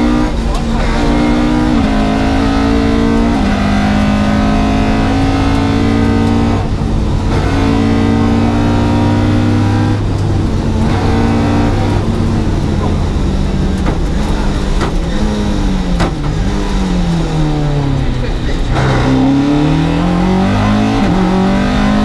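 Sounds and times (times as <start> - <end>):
car engine under throttle: 0.0 - 22.0.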